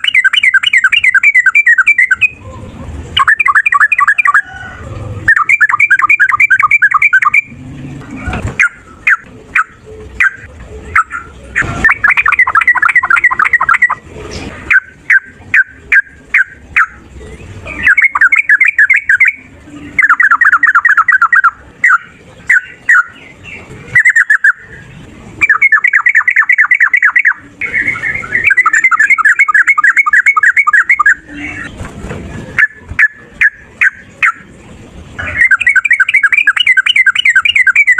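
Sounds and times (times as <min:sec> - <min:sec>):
bird chattering calls: 0:00.0 - 0:31.8, 0:32.6 - 0:34.5, 0:35.2 - 0:37.9
sharp bird call notes: 0:25.4 - 0:31.7.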